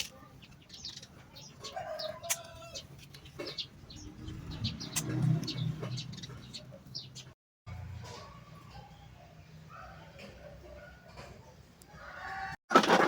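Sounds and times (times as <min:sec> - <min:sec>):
rooster crowing: 0:12.0 - 0:12.6.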